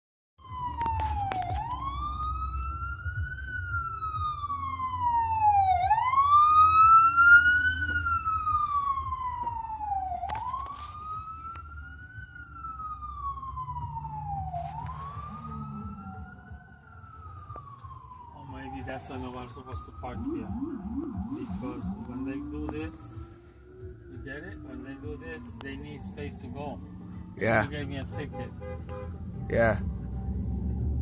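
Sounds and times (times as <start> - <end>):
ambulance siren wailing: 0.4 - 31.0
low traffic rumble: 0.4 - 31.0.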